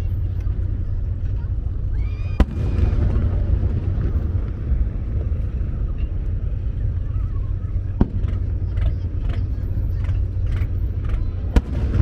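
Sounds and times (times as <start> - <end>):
fireworks rumble: 0.0 - 12.0
firework bang: 2.2 - 6.4, 11.5 - 12.0.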